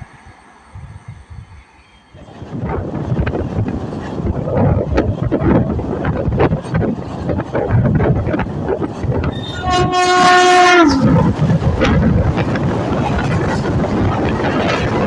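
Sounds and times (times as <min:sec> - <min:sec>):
rushing air: 0:00.0 - 0:15.0
wheels clattering on rails: 0:02.2 - 0:15.0
train horn: 0:09.3 - 0:11.4.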